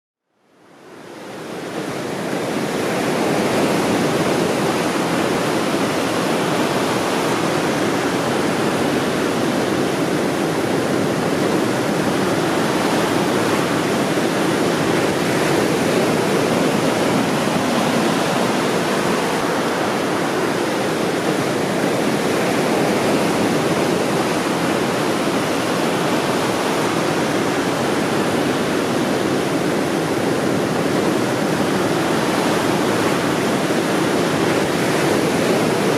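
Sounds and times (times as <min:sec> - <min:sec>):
ocean surf: 0:00.6 - 0:35.9.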